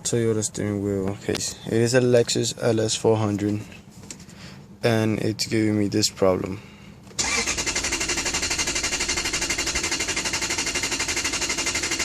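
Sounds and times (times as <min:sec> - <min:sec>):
car starter clattering: 0:07.2 - 0:12.0.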